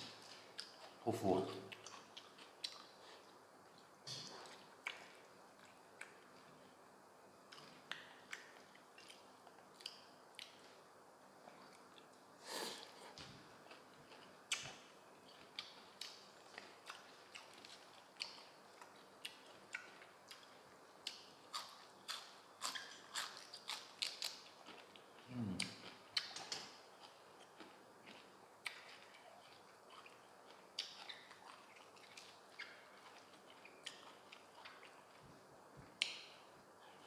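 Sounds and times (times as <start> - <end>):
crunchy chewing: 0.1 - 6.7, 7.5 - 10.8, 11.5 - 35.3
low vocal sound: 25.3 - 25.6.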